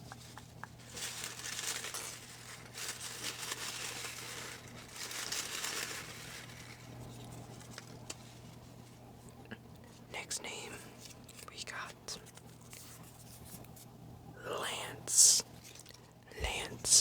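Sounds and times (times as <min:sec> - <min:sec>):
faint low hum: 0:00.0 - 0:17.0
paper crinkling and rustling: 0:00.3 - 0:09.0, 0:11.0 - 0:13.9, 0:15.6 - 0:17.0.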